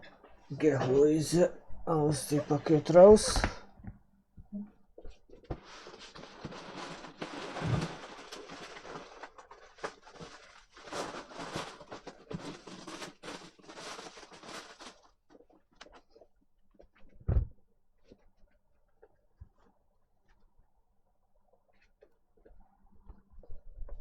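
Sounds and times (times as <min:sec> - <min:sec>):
packaging rustling and crinkling: 0:05.0 - 0:16.9
soft thump: 0:17.3 - 0:17.5.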